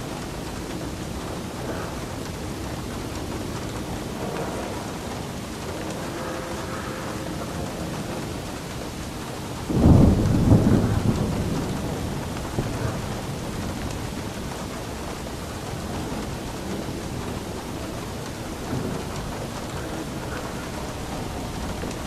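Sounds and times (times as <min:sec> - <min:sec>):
steady rainfall: 0:00.0 - 0:22.0
thunder clap and rumble: 0:00.0 - 0:22.0.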